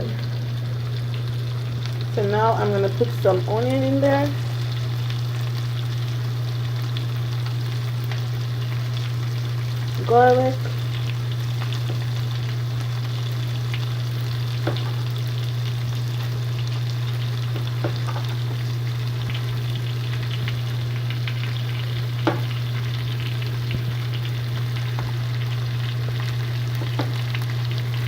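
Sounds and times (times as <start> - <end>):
onion and garlic sizzling in a pan: 0.0 - 28.0
utensil knocking against pan: 22.3 - 22.5.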